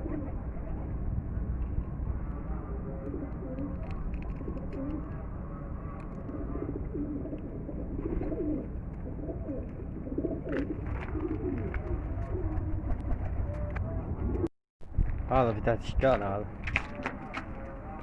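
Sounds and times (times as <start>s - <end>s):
pigeons cooing: 0.0s - 0.8s, 2.2s - 14.5s
low background rumble: 0.0s - 18.0s.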